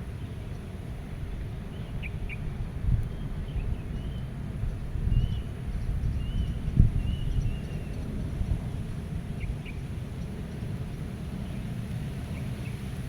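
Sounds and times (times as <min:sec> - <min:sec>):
wind buffeting microphone: 0:02.5 - 0:10.9.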